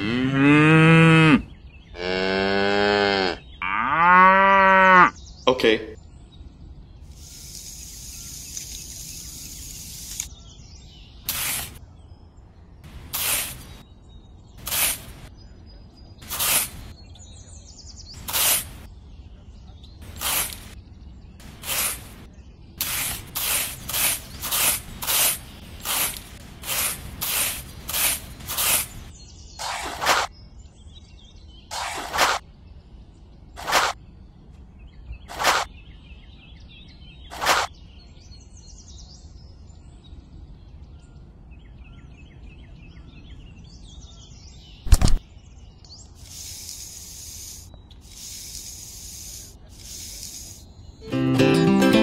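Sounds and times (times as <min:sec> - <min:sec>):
steady hiss: 0:07.1 - 0:10.3, 0:11.3 - 0:11.8, 0:12.9 - 0:13.8, 0:14.6 - 0:15.3, 0:20.0 - 0:20.8, 0:21.4 - 0:29.1, 0:46.2 - 0:50.7
trowel scraping sand: 0:11.3 - 0:11.8, 0:12.9 - 0:13.8, 0:14.6 - 0:15.3, 0:16.2 - 0:16.9, 0:18.2 - 0:18.9, 0:20.0 - 0:20.8, 0:21.4 - 0:30.3, 0:31.7 - 0:32.4, 0:33.6 - 0:34.0, 0:35.3 - 0:35.7, 0:37.3 - 0:37.7, 0:46.2 - 0:50.6.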